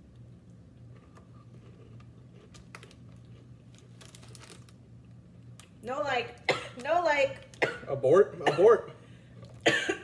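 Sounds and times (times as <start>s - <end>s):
steady low hum: 0.0s - 10.0s
crunching of crisp snack: 0.8s - 5.8s.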